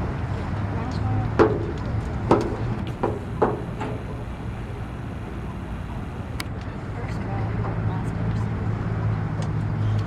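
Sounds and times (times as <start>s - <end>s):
open-air background noise: 0.0s - 10.0s
sharp knocks: 2.3s - 4.1s.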